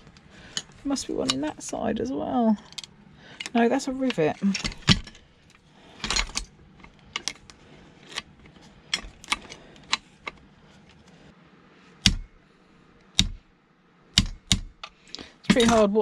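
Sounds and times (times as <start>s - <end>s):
hand tools tapping metal: 14.2s - 16.0s.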